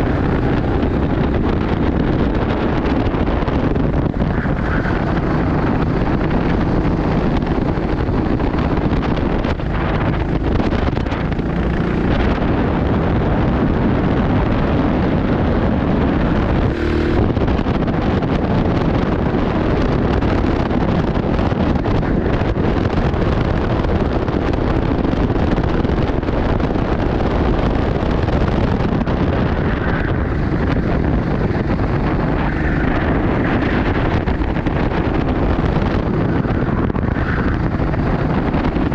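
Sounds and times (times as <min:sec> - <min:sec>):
go-kart engine running: 0:00.0 - 0:38.9
wind buffeting microphone: 0:00.0 - 0:38.9.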